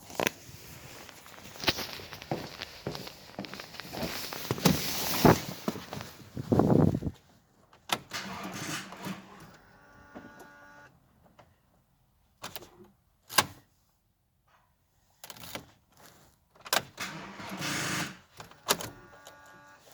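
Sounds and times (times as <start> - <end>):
starter motor whirring: 8.1 - 10.9, 17.0 - 19.9.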